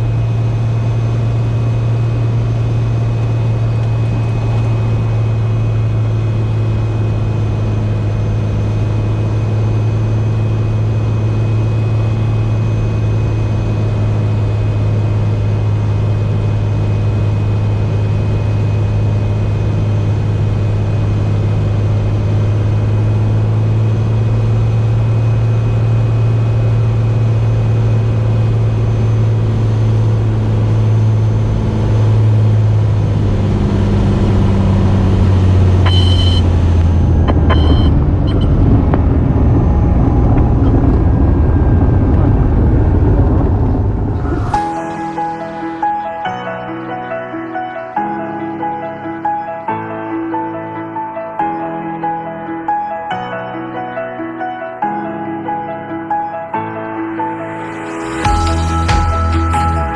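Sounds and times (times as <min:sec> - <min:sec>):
aircraft engine and propeller droning: 0:00.0 - 0:46.3.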